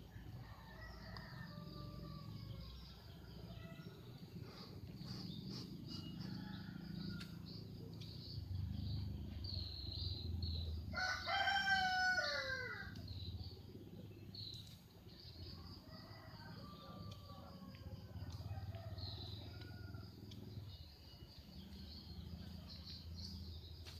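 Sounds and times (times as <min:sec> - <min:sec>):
rooster crowing: 0:00.4 - 0:02.8, 0:05.9 - 0:07.6, 0:10.9 - 0:13.0, 0:15.6 - 0:20.1.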